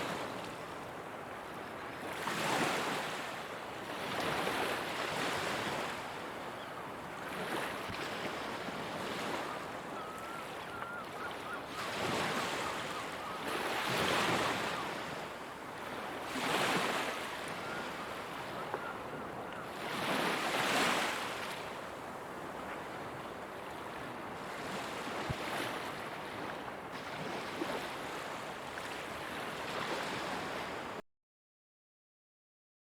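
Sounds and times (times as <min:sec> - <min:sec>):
ocean waves breaking: 0:07.1 - 0:31.0.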